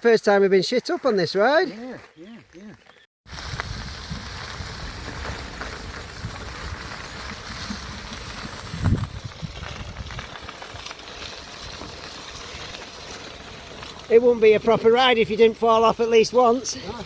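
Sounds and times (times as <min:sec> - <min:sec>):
wind buffeting microphone: 0:03.3 - 0:10.9.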